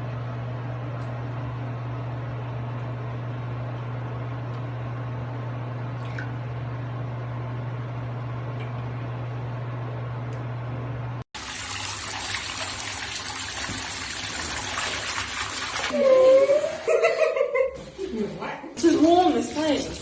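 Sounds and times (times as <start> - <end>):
low electric hum: 0.0 - 11.2.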